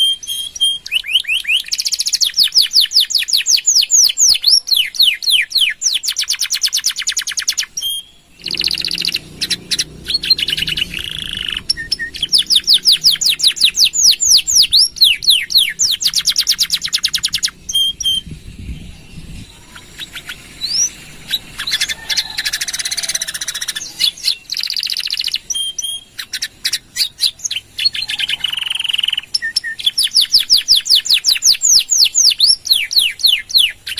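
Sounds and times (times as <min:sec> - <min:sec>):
canary singing: 0:00.0 - 0:33.9.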